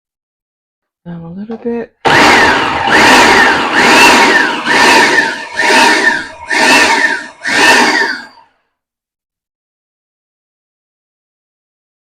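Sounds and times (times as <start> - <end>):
food processor motor pulsing: 2.0 - 8.4.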